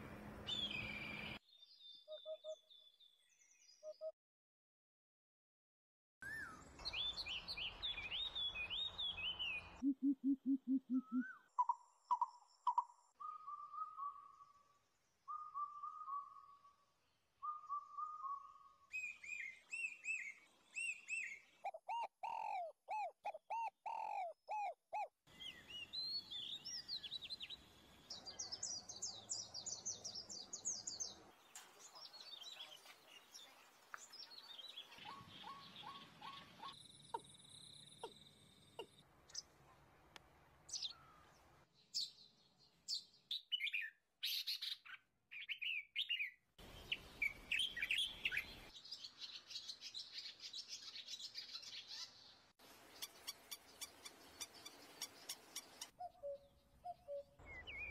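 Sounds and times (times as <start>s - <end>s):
birds chirping and calling: 17.7s - 27.5s, 28.2s - 39.4s, 43.4s - 52.2s, 52.9s - 57.9s.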